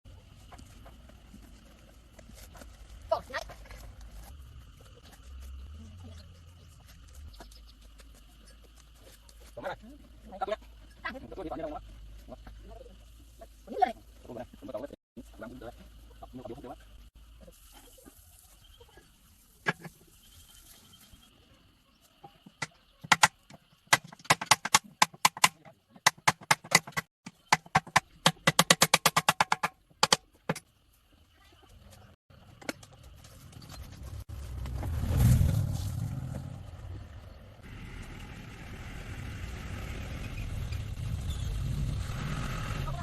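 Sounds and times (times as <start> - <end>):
fast sharp knocks: 23.0 - 30.2
engine running: 32.8 - 43.0
motor vehicle passing: 34.0 - 43.0.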